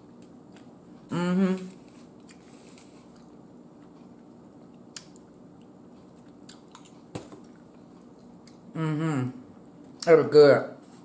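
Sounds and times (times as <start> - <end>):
wet chewing of food: 1.8 - 8.7.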